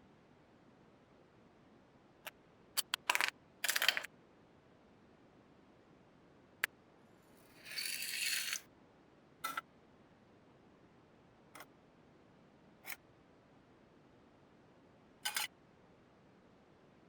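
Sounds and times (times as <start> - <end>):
toy parts clicking and rattling: 2.8 - 4.1, 7.6 - 8.6.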